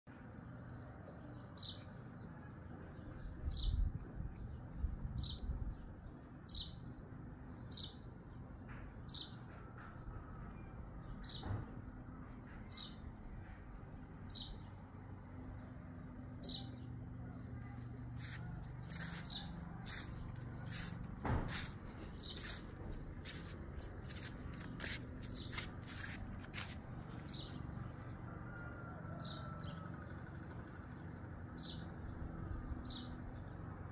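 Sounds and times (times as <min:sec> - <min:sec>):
low background hum: 0:00.1 - 0:33.9
songbird chirping: 0:16.3 - 0:26.2
low bumps: 0:18.2 - 0:27.5.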